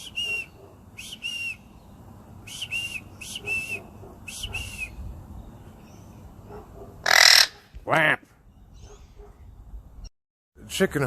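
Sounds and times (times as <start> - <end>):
short double whistles: 0.0 - 1.7, 2.5 - 5.0.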